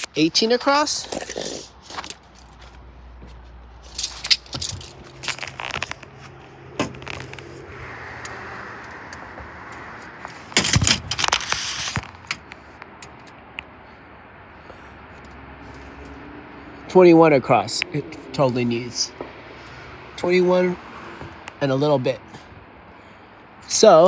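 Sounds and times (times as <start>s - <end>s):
tape measure clicking and scraping: 3.9s - 6.1s, 10.3s - 12.5s.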